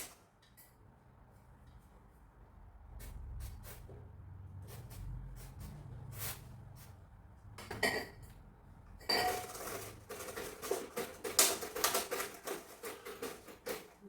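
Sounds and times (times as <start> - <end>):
dishes clinking and clattering: 7.6 - 8.4, 9.0 - 14.0.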